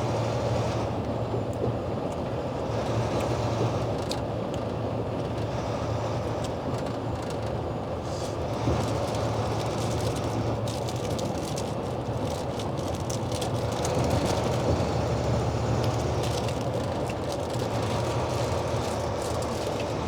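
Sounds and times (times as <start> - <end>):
road noise: 7.7 - 20.0
truck engine drone: 8.0 - 20.0.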